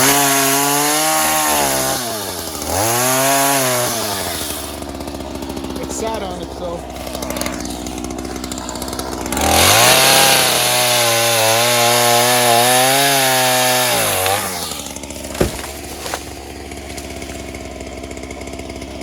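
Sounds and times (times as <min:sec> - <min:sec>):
chainsaw cutting wood: 0:00.0 - 0:19.0
sharp knocks: 0:15.2 - 0:17.2.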